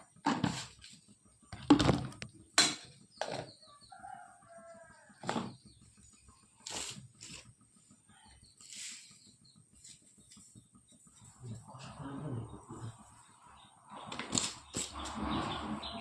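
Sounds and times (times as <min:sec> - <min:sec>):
sharp knocks and scrapes: 0:00.2 - 0:03.5, 0:06.6 - 0:07.5, 0:14.0 - 0:16.0.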